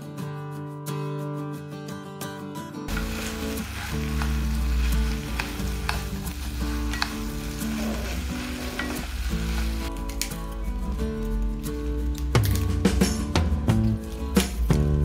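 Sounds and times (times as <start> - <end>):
meat and vegetables sizzling in a pan: 2.9 - 10.2
wooden utensil clicking on pan: 4.1 - 6.3, 6.9 - 8.0.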